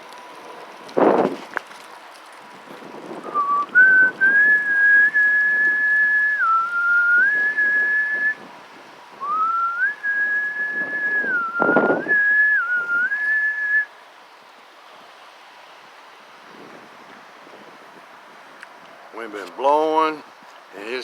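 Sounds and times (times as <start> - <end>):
faint wind noise: 0.0 - 21.0
person whistling a tune: 3.3 - 8.4, 9.2 - 13.9.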